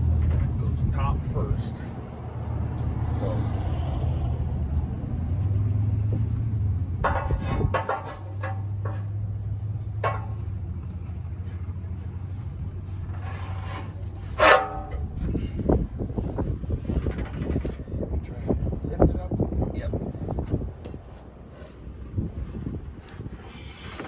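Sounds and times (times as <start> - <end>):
metal tools clanking on wheel rim: 0.0 - 3.4, 7.0 - 10.6, 11.4 - 18.5
low motor hum: 0.0 - 21.0.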